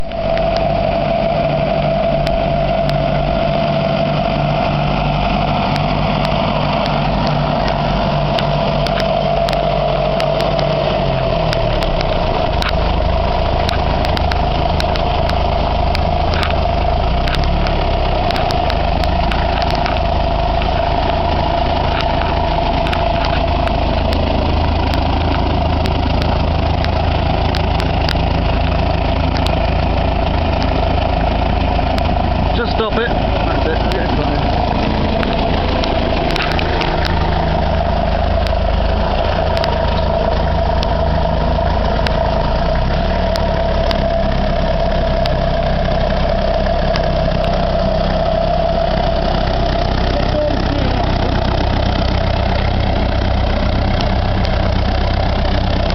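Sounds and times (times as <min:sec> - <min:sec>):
steady whining tone: 0:00.0 - 0:55.9
tractor diesel engine running: 0:00.0 - 0:55.9.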